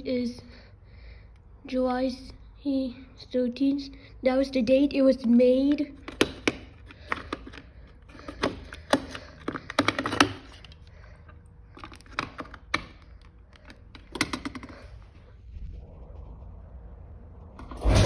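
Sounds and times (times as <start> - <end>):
plastic button clicks and taps: 6.0 - 10.6
steady low noise: 14.8 - 18.0.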